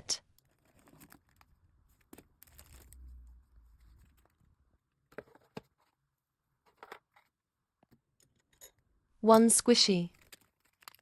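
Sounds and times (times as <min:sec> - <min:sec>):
packaging clicks and rustles: 0:00.4 - 0:03.1, 0:10.1 - 0:11.0.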